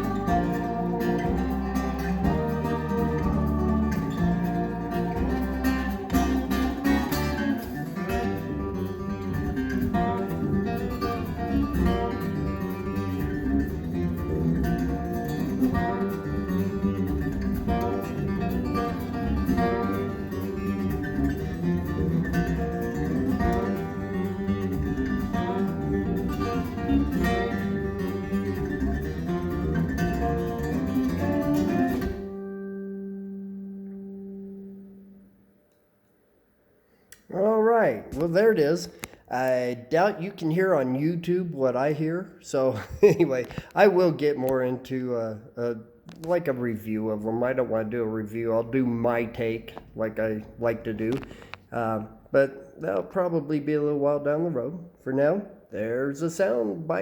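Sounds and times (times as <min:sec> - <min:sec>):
acoustic guitar music over speakers: 0:00.0 - 0:35.8, 0:46.0 - 0:57.0.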